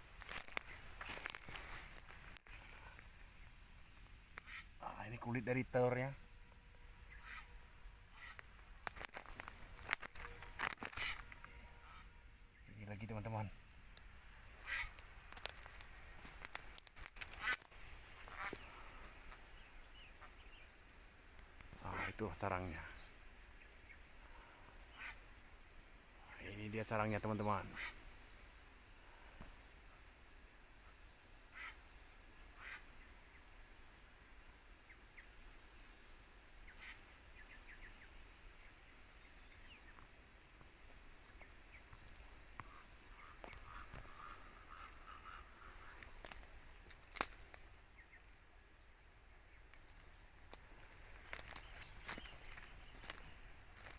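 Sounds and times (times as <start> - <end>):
birds honking squawks: 0.0 - 3.4, 6.7 - 19.4, 42.6 - 47.2, 49.9 - 53.9
faint ticks: 0.0 - 4.6, 13.7 - 19.4, 41.9 - 42.8
outdoor background hiss: 0.0 - 53.9
faint bird chirps: 0.5 - 13.6, 34.7 - 40.2, 41.1 - 46.9, 47.8 - 53.9.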